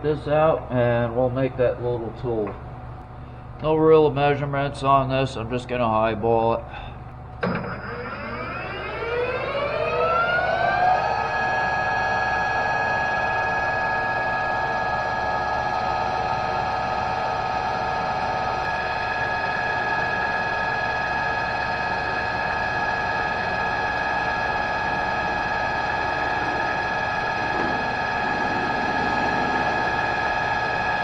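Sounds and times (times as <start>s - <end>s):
electric motor whining: 7.4s - 16.6s, 17.9s - 31.0s.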